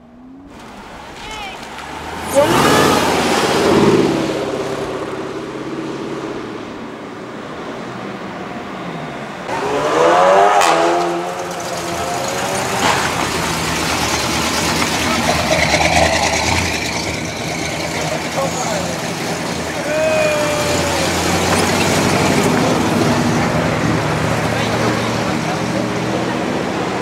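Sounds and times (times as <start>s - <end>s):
car engines accelerating away: 0.0s - 27.0s
car engine revving hard: 1.8s - 6.3s, 9.5s - 27.0s.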